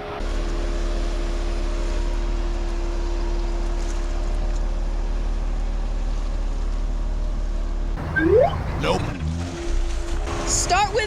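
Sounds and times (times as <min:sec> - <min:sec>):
car engine running at low speed: 0:08.0 - 0:09.1.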